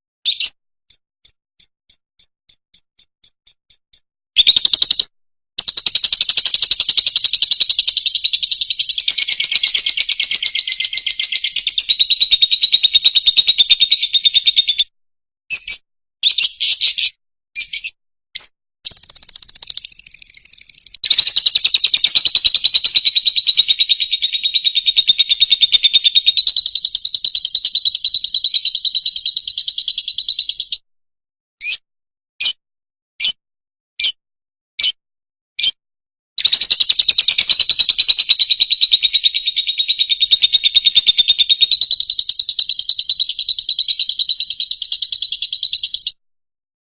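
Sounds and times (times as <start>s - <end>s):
bird chirps: 0.2s - 14.9s, 15.5s - 30.8s, 31.6s - 31.8s, 36.4s - 46.2s
lovebird chattering twitter: 0.3s - 0.6s, 4.4s - 14.8s, 15.5s - 30.7s, 36.4s - 46.1s.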